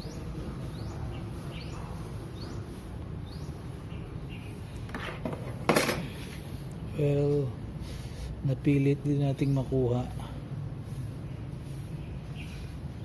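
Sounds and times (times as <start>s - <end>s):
small bird chirping: 0.0s - 4.9s, 11.2s - 13.0s
steady low hum: 0.0s - 13.0s.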